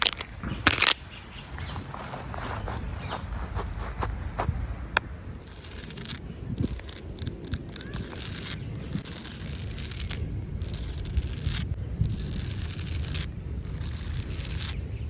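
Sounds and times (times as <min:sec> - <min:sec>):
footsteps in dry leaves: 0:00.0 - 0:04.7.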